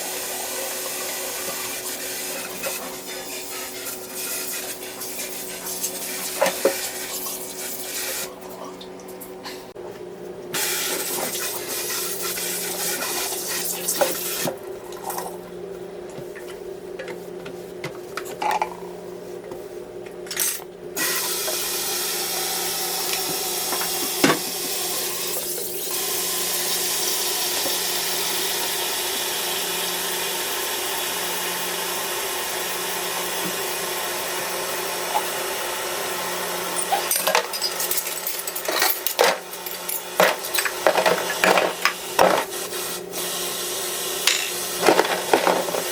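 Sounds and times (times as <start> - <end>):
water running from a tap: 0.0 - 8.4, 10.6 - 14.5, 21.0 - 37.1.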